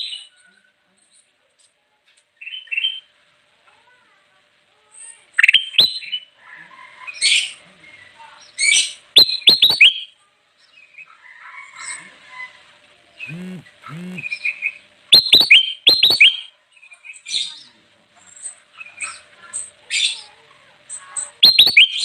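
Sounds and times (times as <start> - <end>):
bulbul singing whistled notes: 9.2 - 10.1, 15.1 - 16.5, 21.4 - 22.0.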